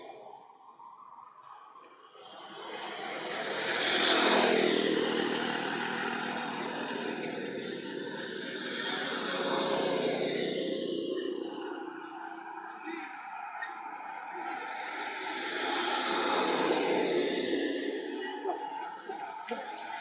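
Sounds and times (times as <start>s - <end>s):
vehicle driving past: 2.1s - 20.0s.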